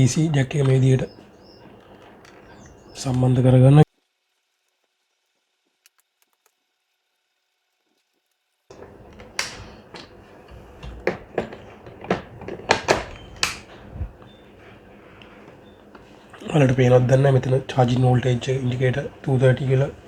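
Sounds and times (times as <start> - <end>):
plastic clicks and knocks: 8.7 - 14.6.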